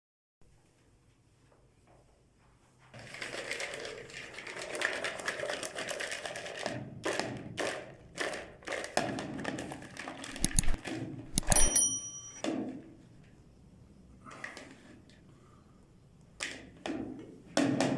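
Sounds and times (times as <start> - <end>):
metallic ring: 10.4 - 12.5.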